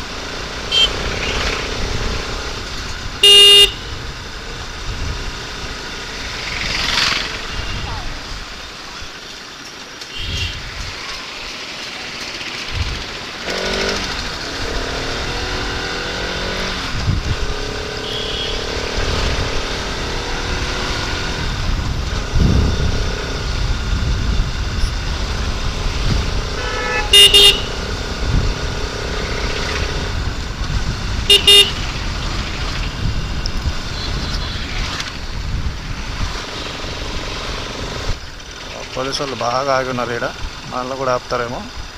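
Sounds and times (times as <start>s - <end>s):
motorcycle engine running: 0.0s - 8.8s, 10.1s - 41.0s
vehicle horn honking: 0.6s - 1.4s, 3.2s - 4.0s, 7.5s - 7.9s, 10.1s - 10.6s, 18.0s - 19.0s, 26.5s - 28.0s, 31.3s - 31.9s, 33.9s - 34.7s
wind rumble on microphone: 16.6s - 17.9s, 18.9s - 27.1s, 28.0s - 38.4s.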